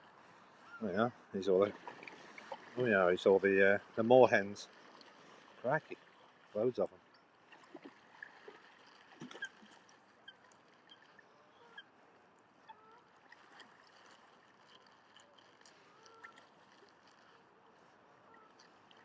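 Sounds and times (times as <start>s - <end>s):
waterbird calls and chirps: 0.6s - 1.0s, 9.2s - 12.0s, 12.6s - 13.2s, 15.1s - 19.0s.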